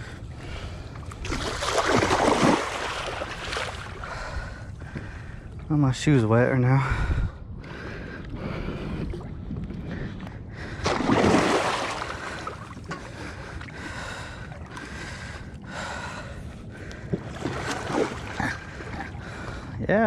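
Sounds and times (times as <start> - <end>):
fish splashing in water: 1.2 - 4.0, 10.8 - 12.9.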